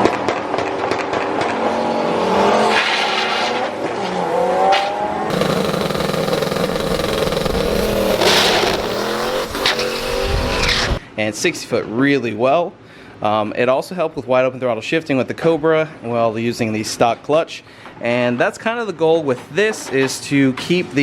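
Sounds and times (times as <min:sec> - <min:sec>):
car engine revving: 0:05.3 - 0:11.0.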